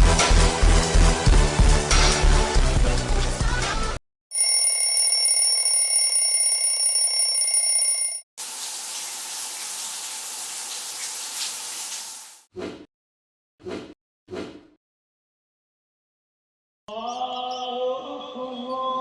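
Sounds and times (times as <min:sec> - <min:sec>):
high ringing tone: 0:04.3 - 0:08.2
water running from a tap: 0:08.4 - 0:12.4.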